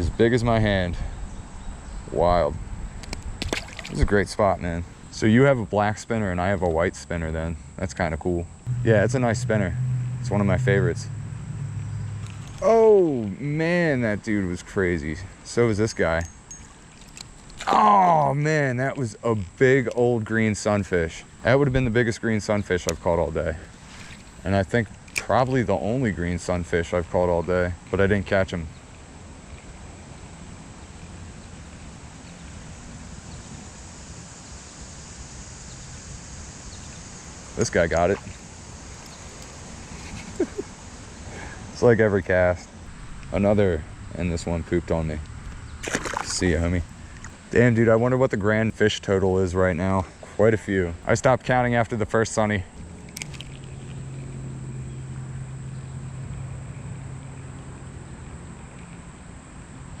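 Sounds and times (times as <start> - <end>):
wind rumbling on microphone: 0.0 - 5.2
outdoor noise: 0.0 - 60.0
steady low hum: 0.0 - 60.0
creek water flowing: 3.4 - 5.2, 22.4 - 25.4, 37.4 - 47.7.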